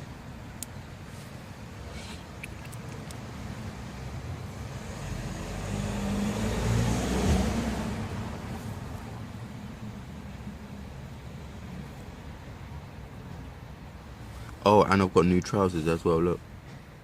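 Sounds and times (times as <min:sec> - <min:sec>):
car passing by: 0:03.3 - 0:09.4.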